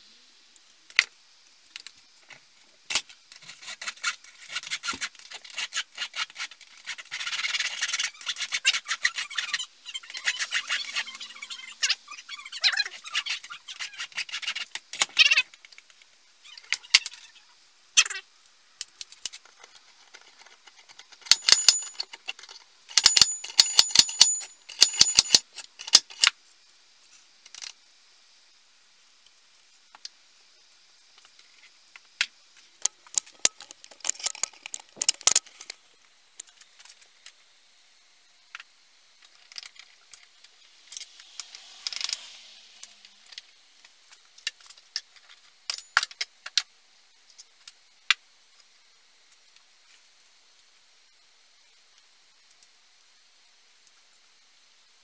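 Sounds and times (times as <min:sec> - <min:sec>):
metal parts and tools clinking: 0:20.2 - 0:26.3, 0:33.2 - 0:35.7, 0:44.7 - 0:46.2.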